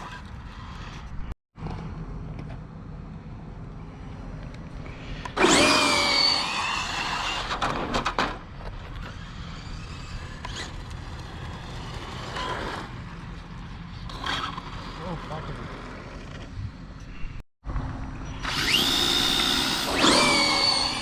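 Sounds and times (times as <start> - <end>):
electric motor high whine: 5.3 - 7.6, 17.8 - 21.0.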